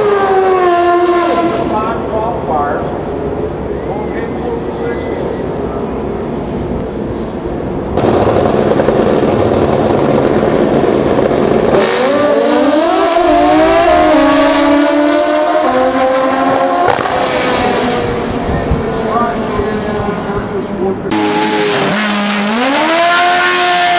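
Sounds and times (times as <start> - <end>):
motorcycle engine at full throttle: 7.9 - 23.9.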